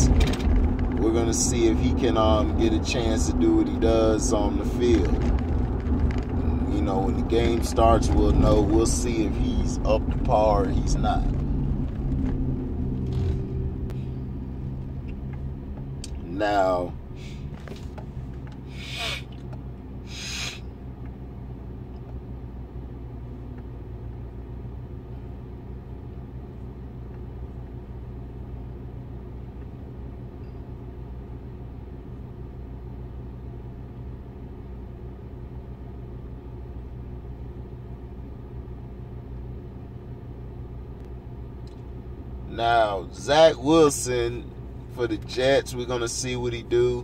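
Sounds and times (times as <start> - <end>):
car engine rumbling inside cabin: 0.0 - 47.0
short hisses: 18.7 - 19.4, 20.1 - 20.6.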